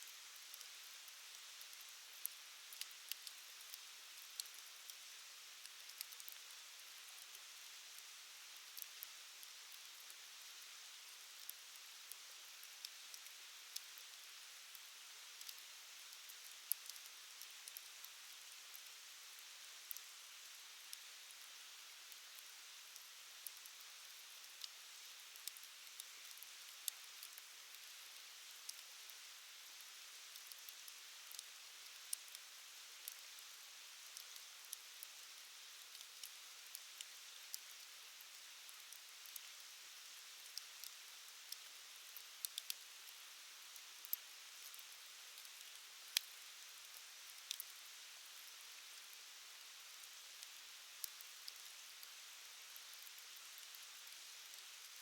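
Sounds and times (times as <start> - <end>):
wood fire crackling and popping: 1.8 - 3.8, 4.4 - 4.6, 16.4 - 17.0, 17.6 - 18.1, 25.4 - 28.8, 30.3 - 31.5, 34.1 - 35.1, 38.9 - 39.4, 46.9 - 47.7, 53.0 - 53.8.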